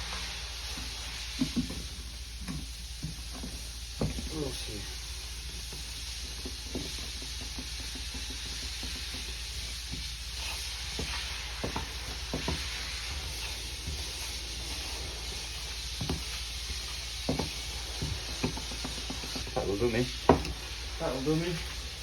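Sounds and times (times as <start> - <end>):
steady hiss: 0.0 - 22.0
stick scraping and tapping a cup: 6.3 - 14.3, 16.0 - 19.6.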